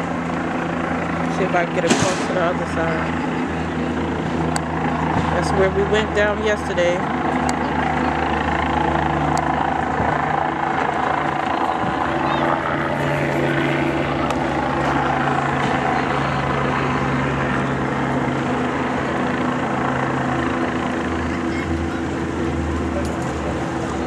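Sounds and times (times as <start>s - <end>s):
engine drone: 0.0s - 24.0s.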